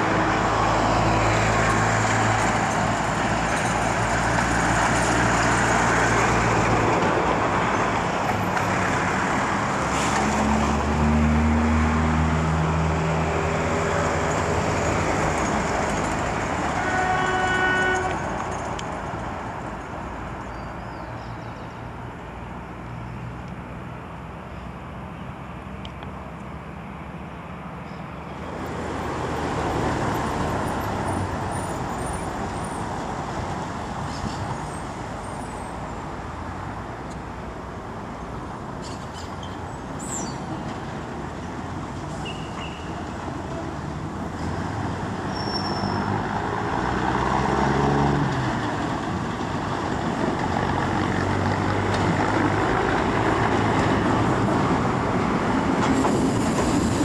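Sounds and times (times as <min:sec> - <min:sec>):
road traffic: 0:00.0 - 0:57.0
train horn blast: 0:16.7 - 0:18.3
diesel railcar engine rumble: 0:48.2 - 0:57.0.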